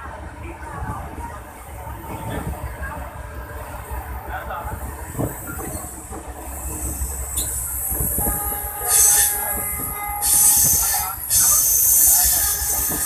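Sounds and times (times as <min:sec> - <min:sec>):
low train rumble: 0:00.0 - 0:13.0
hissing rail noise: 0:02.0 - 0:13.0
train wheels squealing: 0:06.6 - 0:13.0.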